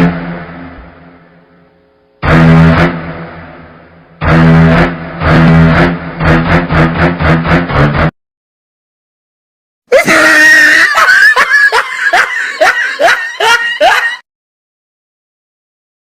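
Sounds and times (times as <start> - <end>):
person screaming: 9.9 - 11.8.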